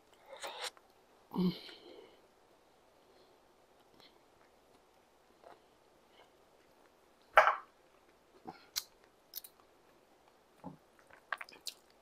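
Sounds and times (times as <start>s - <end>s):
person chewing food: 8.6s - 12.0s.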